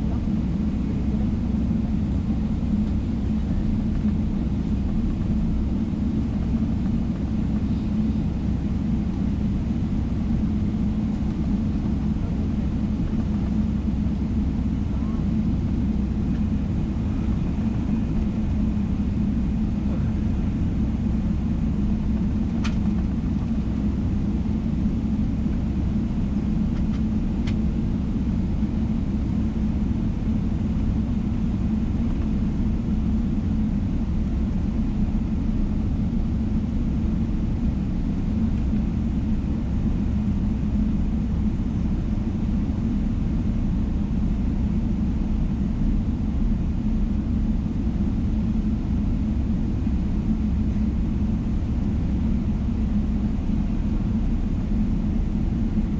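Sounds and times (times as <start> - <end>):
airplane cabin rumble: 0.0 - 55.9.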